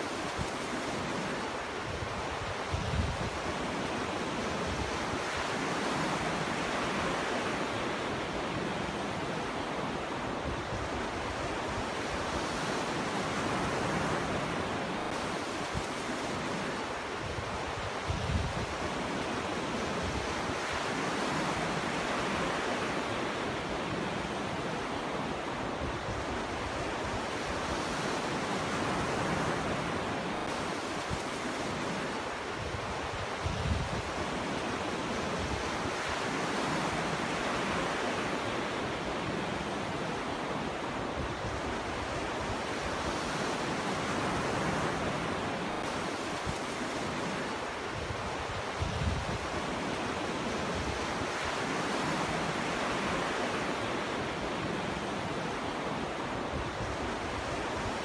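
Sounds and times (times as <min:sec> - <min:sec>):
ocean waves breaking on beach: 0:00.0 - 0:58.0
wind buffeting microphone: 0:17.1 - 0:21.2, 0:32.4 - 0:36.9, 0:47.8 - 0:53.0.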